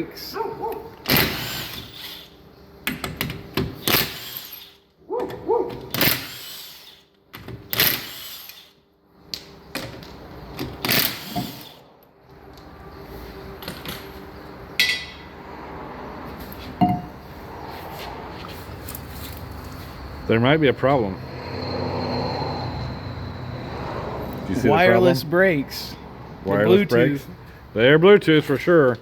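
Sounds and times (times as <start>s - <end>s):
metallic clanks of hand tools: 14.8s - 15.2s.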